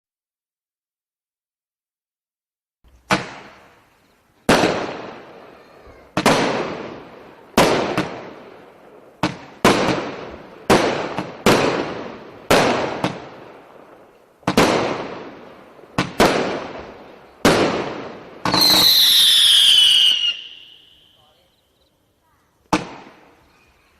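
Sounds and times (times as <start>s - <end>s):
firework bangs: 3.0s - 21.2s, 22.7s - 23.4s.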